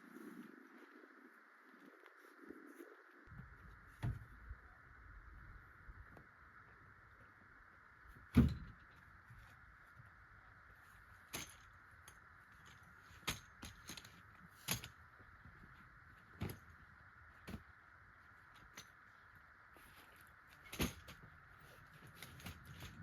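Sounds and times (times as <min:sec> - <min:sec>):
heavy thump of camp gear: 0:08.3 - 0:08.8.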